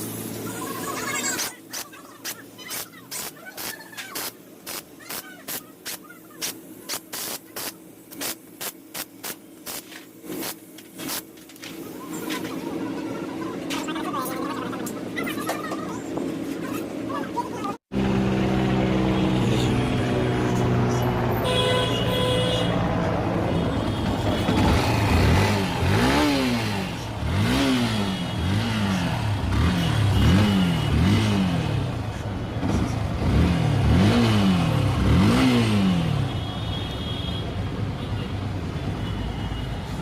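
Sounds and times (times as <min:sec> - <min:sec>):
motorcycle engine idling and revving: 0:17.9 - 0:36.6.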